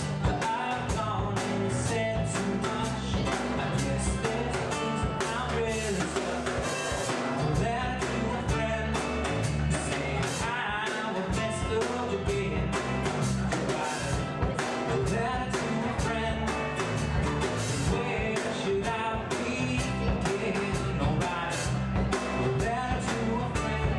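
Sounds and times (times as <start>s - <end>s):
small live band playing: 0.0s - 23.9s.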